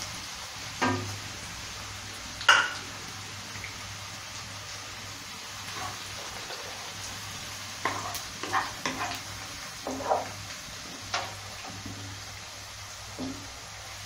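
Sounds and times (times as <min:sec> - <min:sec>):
onions sizzling in hot oil: 0:00.0 - 0:14.0
wooden spatula scraping a wok: 0:05.6 - 0:07.0, 0:07.8 - 0:12.2.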